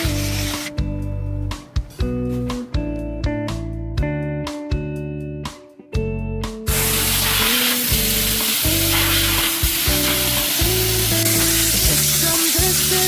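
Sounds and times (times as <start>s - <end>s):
steam cleaner hissing: 0.0s - 0.7s, 6.7s - 13.0s
pop music with bass: 0.0s - 13.0s.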